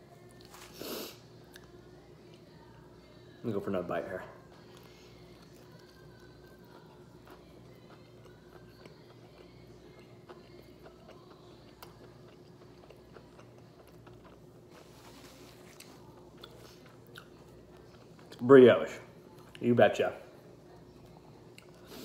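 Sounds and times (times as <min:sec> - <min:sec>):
person chewing crispy food: 0:04.5 - 0:18.5.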